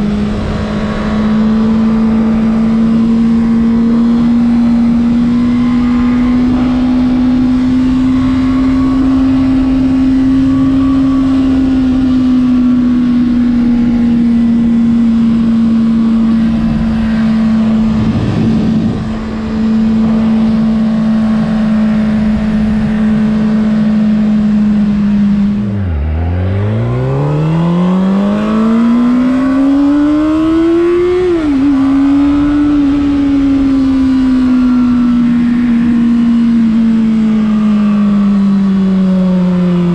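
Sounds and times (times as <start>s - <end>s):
motorcycle engine revving: 0.0s - 39.9s
steady rushing noise: 14.9s - 29.9s.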